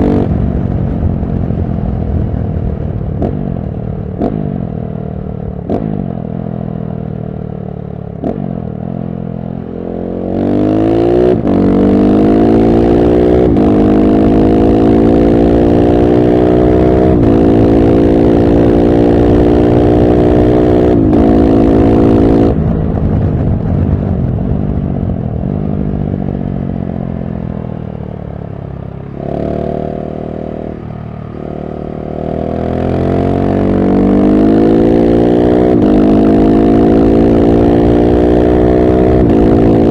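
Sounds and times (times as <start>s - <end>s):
motorcycle engine accelerating through gears: 0.0s - 39.9s.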